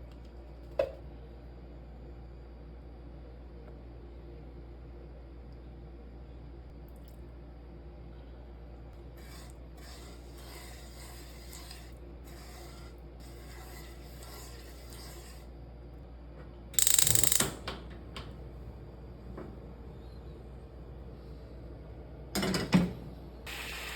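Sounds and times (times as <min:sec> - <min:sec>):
faint scraping or rubbing: 0:09.2 - 0:15.5
small clicks: 0:16.8 - 0:17.6.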